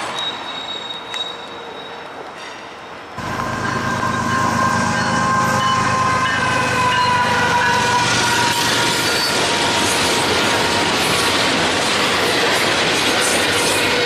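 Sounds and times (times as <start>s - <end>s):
freight train rolling by: 0.0s - 14.0s
high-pitched tones: 3.2s - 7.9s.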